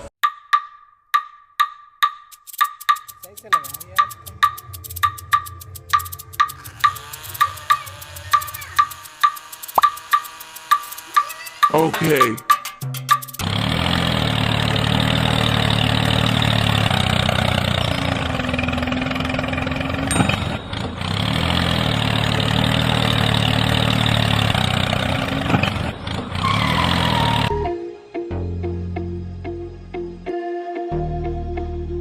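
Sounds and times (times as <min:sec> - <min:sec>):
small engine running: 0:02.4 - 0:12.4, 0:13.1 - 0:27.6.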